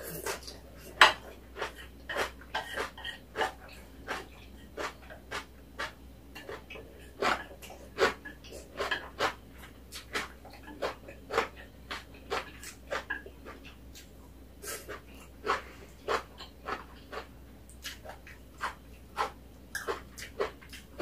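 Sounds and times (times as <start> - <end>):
chewing and lip smacks: 14.9 - 21.0.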